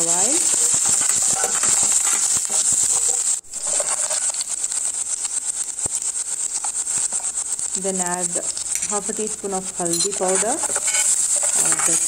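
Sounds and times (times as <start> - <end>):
spices sizzling in hot oil: 0.0 - 12.0
steel ladle scraping pan: 0.1 - 4.4, 9.8 - 12.0.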